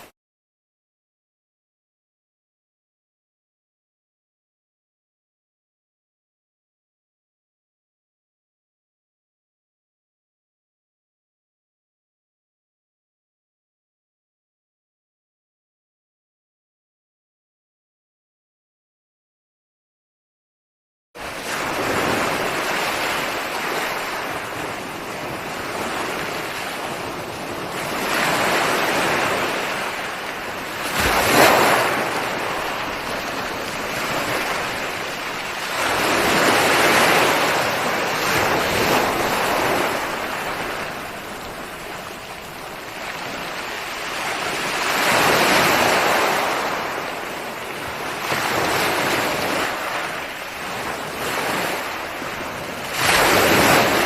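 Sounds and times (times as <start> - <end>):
ocean waves breaking: 21.2 - 54.0.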